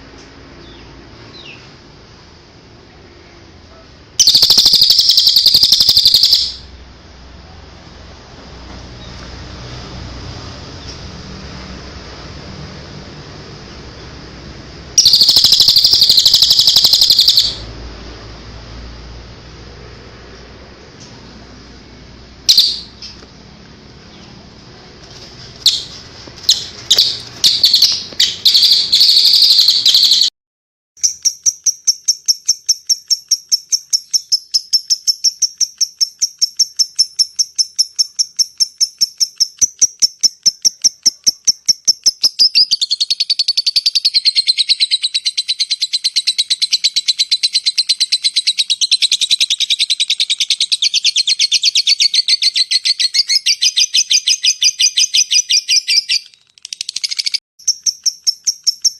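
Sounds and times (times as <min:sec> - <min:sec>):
harsh bird chirps: 0:03.2 - 0:06.7, 0:15.0 - 0:17.8, 0:22.4 - 0:23.4, 0:25.1 - 0:30.3, 0:31.0 - 0:58.9
bird trilling: 0:04.2 - 0:06.7, 0:15.0 - 0:17.7, 0:22.5 - 0:23.2, 0:25.6 - 0:30.3.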